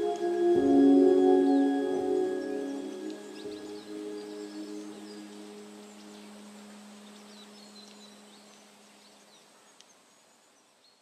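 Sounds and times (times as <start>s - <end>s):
held low ambient music note: 0.0s - 8.7s
small birds chirping faintly: 0.0s - 11.0s.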